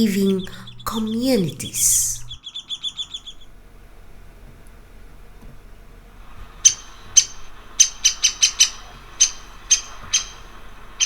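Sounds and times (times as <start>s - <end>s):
woodpecker calls: 0.0s - 3.6s, 6.6s - 11.0s.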